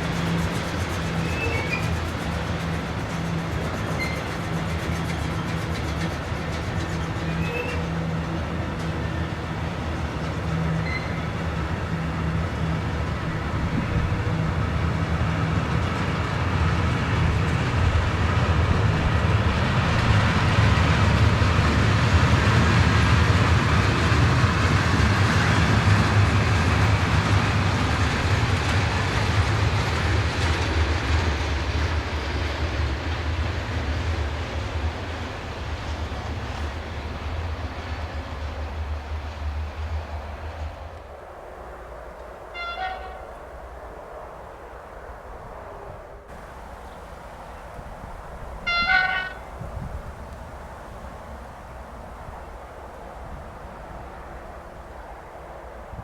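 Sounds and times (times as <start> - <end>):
wheels clickety-clack: 0.0 - 41.1
train rumbling past: 0.0 - 56.0.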